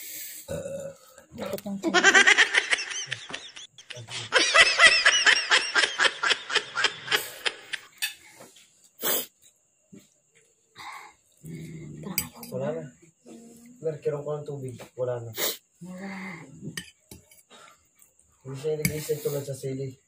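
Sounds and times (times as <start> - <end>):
short sharp hiss: 9.0 - 9.4, 15.4 - 15.6.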